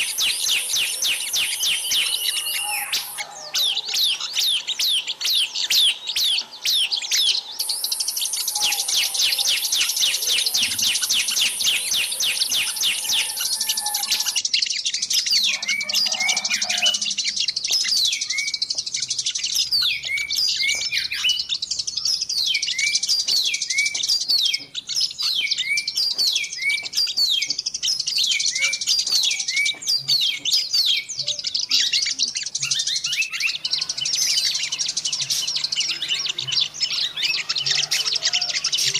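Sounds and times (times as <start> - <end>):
buzzing bird trill: 0.0 - 14.4, 33.2 - 38.9
small birds chirping: 0.0 - 38.9.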